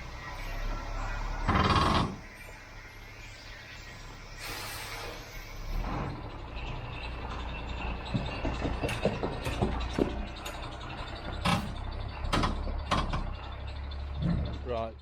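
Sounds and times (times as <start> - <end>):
truck engine idling: 0.0 - 15.0
metallic clanks and knocks: 6.6 - 14.9.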